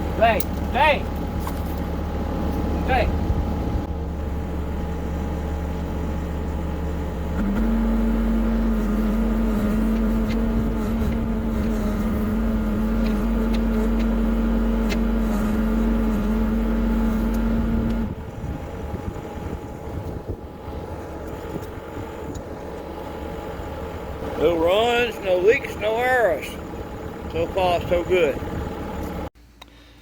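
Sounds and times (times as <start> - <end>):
excavator diesel engine running: 0.0 - 29.3.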